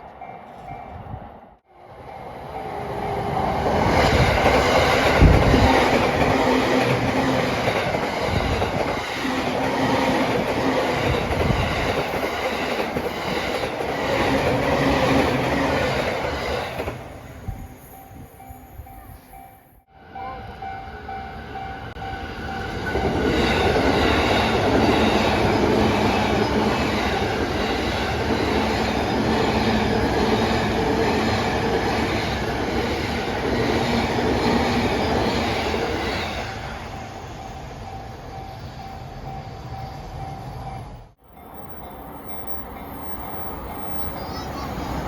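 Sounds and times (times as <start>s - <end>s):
train wheels on rails: 0.0s - 45.0s
crossing warning bell ringing: 17.4s - 33.8s, 35.2s - 45.0s.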